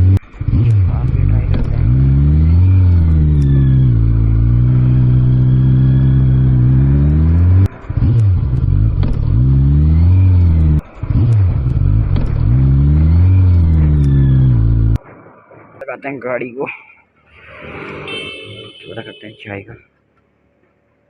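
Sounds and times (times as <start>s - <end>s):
motorcycle engine revving through gears: 0.0s - 15.0s.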